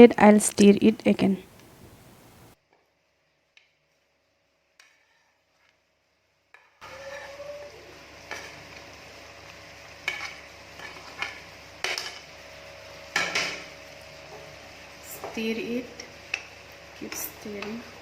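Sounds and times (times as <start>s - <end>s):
food sizzling in a pan: 6.8s - 18.0s.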